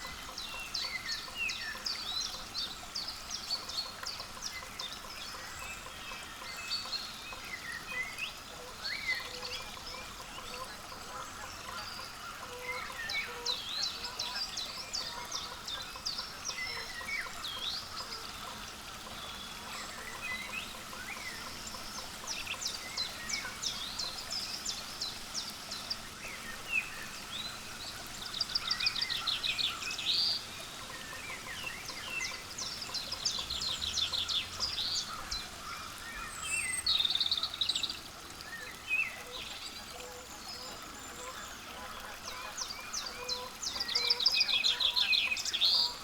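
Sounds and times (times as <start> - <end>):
songbirds chirping: 0.0 - 46.0.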